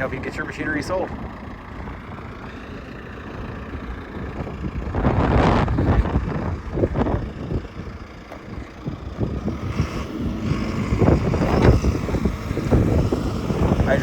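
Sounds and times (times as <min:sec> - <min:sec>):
diesel engine running under load: 0:00.0 - 0:14.0
wind buffeting microphone: 0:03.3 - 0:14.0.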